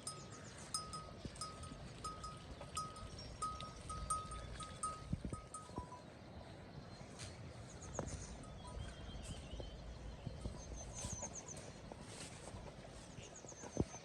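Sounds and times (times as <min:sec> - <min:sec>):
faint outdoor background noise: 0:00.0 - 0:14.0
small birds chirping: 0:00.0 - 0:14.0.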